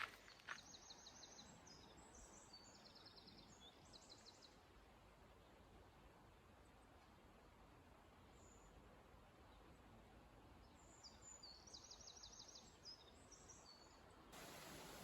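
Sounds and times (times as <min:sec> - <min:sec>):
faint songbird singing: 0:00.0 - 0:04.7, 0:10.6 - 0:15.0.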